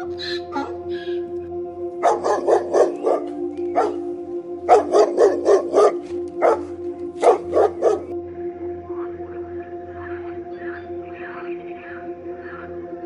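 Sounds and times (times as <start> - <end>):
background music drone: 0.0 - 13.0
dog barking: 2.0 - 4.1, 4.7 - 8.1.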